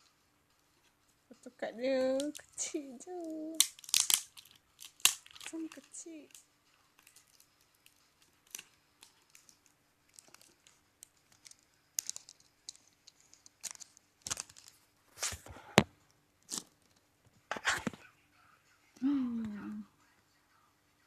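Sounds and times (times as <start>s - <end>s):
packaging crinkling and tearing: 2.2s - 6.4s, 7.0s - 15.5s, 16.4s - 17.0s.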